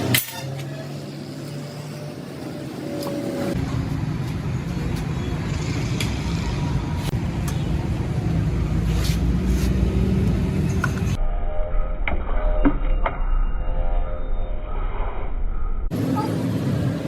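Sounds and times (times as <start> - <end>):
engine rumbling: 0.0 - 11.2.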